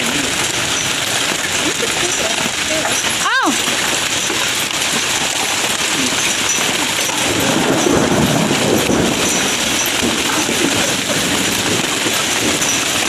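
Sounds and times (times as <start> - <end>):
hail and rain falling heavily: 0.0 - 13.0.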